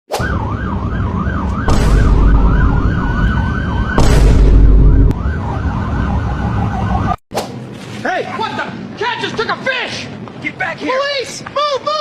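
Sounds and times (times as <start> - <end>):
police siren yelping: 0.1 - 7.2
deep rumble surges: 1.5 - 7.2.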